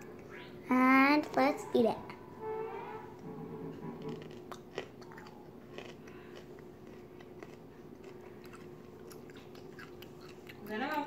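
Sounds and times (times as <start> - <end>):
person chewing crunchy cucumber: 4.0 - 11.0.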